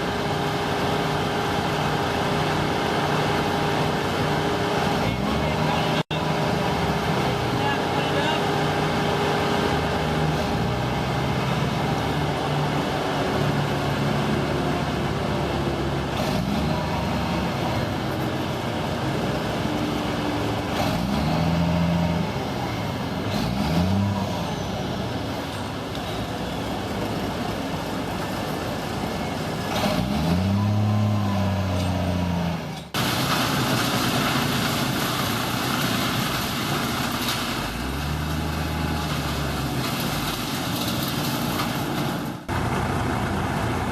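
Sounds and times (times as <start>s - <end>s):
engine revving: 8.4s - 25.2s, 29.7s - 32.8s.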